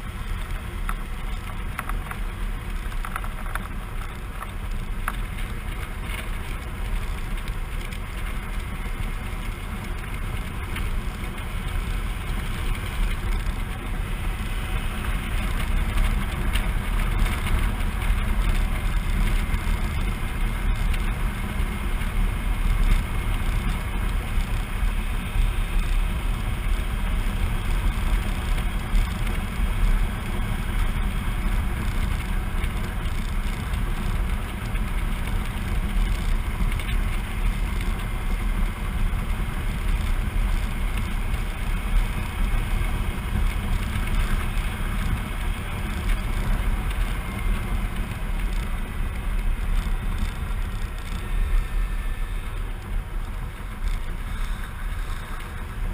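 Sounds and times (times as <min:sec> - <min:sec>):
motorcycle engine: 0:00.0 - 0:55.9
wind and road noise: 0:00.0 - 0:55.9.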